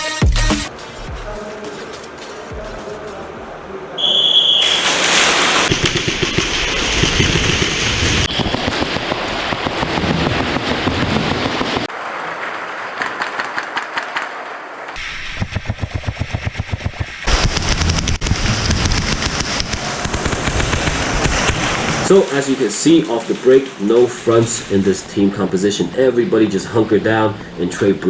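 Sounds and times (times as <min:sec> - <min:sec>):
high whistle blast: 0:04.0 - 0:05.7
pellets clattering on cover: 0:04.0 - 0:07.4, 0:22.0 - 0:25.2.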